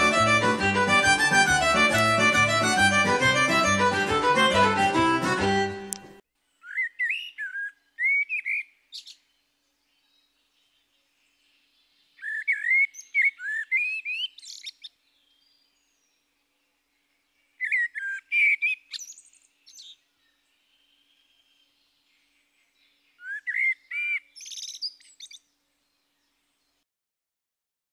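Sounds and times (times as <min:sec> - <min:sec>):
songbird singing: 0:05.9 - 0:26.8.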